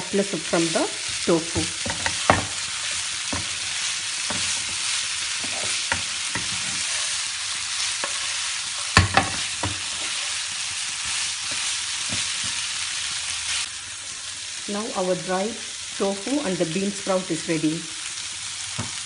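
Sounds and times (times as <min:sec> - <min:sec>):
food sizzling in frying pan: 0:00.0 - 0:19.0
wooden spatula scraping pan: 0:01.6 - 0:12.6.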